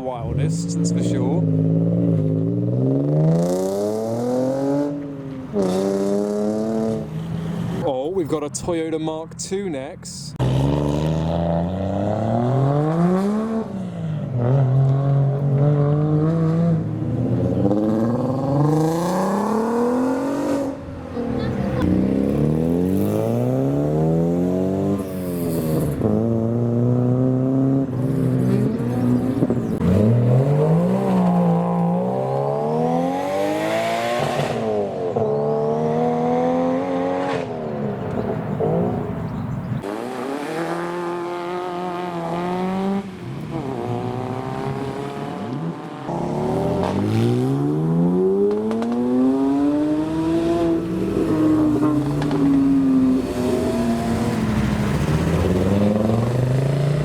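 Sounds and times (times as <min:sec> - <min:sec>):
car engines accelerating hard: 0:00.0 - 0:09.2, 0:09.8 - 0:57.0.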